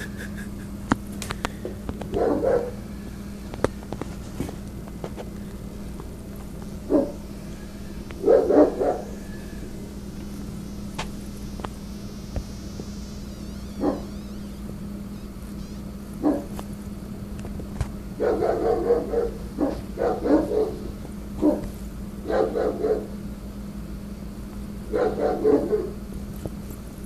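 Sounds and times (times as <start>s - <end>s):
steady low hum: 0.0s - 27.0s
dog barking deeply: 2.1s - 2.8s, 6.9s - 7.3s, 8.2s - 9.2s, 13.8s - 14.1s, 16.2s - 16.5s, 18.2s - 23.2s, 24.9s - 26.0s.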